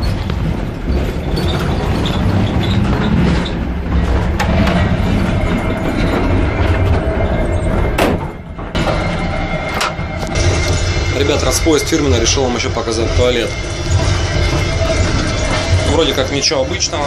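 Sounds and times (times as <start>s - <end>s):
sharp clicks and knocks: 0.0s - 5.0s
carriage rattling: 0.0s - 8.9s
train wheels rumbling on rails: 0.0s - 17.0s.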